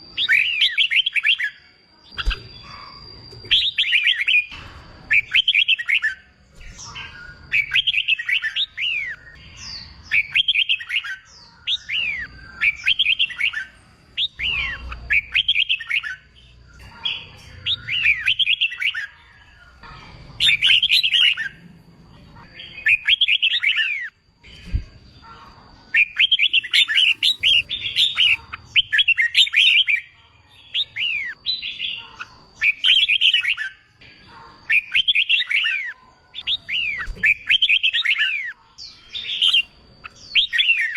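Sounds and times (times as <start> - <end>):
bulbul singing warbled phrases: 20.4 - 21.6, 25.9 - 33.9, 36.5 - 40.9.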